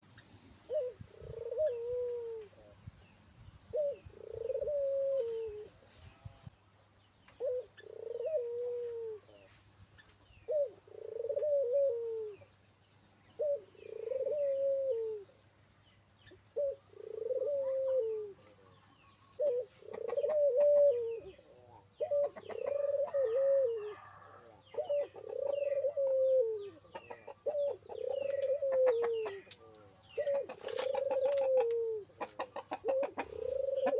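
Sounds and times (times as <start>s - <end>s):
small birds chirping: 0.0s - 33.9s
dove cooing: 0.6s - 2.9s, 3.7s - 5.8s, 7.4s - 9.5s, 10.4s - 12.5s, 13.4s - 15.4s, 16.5s - 33.9s.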